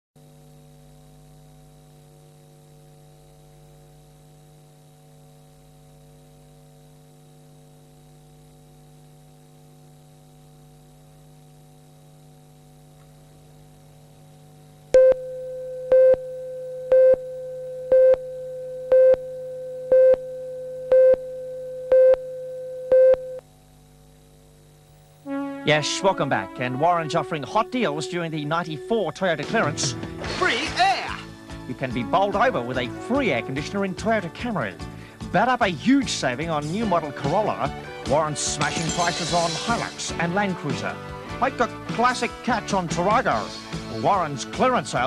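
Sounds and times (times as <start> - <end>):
electrical mains hum: 0.2 - 45.0
steady test tone: 14.9 - 23.4.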